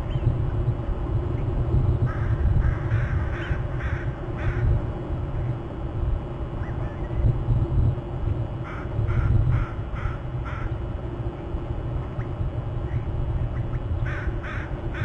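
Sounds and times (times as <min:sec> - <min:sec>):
steady low rumble: 0:00.0 - 0:15.0
bird harsh caw-like calls: 0:02.0 - 0:04.8, 0:08.6 - 0:10.8, 0:13.6 - 0:15.0.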